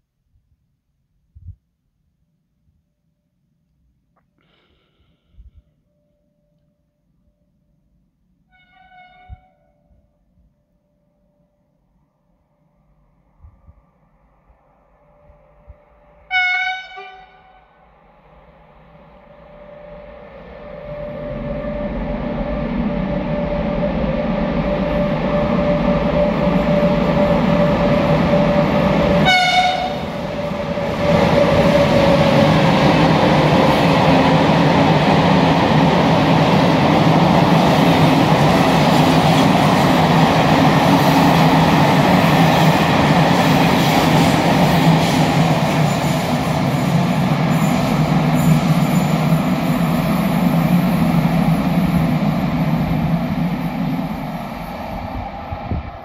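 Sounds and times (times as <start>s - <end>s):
train horn: 8.5s - 10.2s, 16.2s - 17.9s, 19.5s - 30.4s
train rumbling past: 8.5s - 56.0s.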